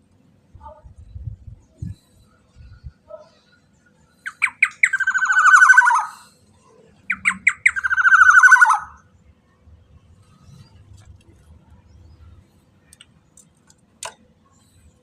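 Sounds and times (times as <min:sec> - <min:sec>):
bird harsh rasping calls: 0:04.2 - 0:06.3, 0:07.1 - 0:09.0.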